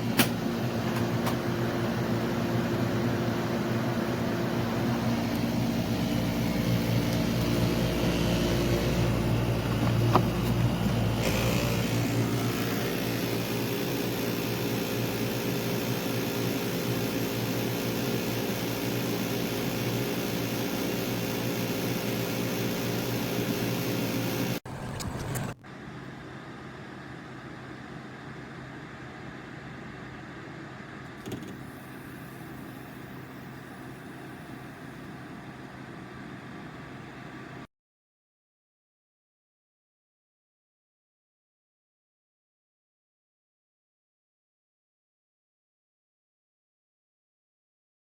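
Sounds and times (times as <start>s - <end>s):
air conditioner running: 0.0s - 37.6s.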